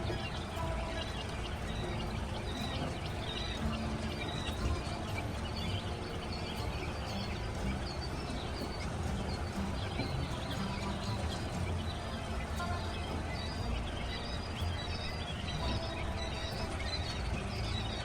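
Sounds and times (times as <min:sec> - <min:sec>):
baby chicks peeping: 0:00.0 - 0:18.0
low background rumble: 0:00.0 - 0:18.0.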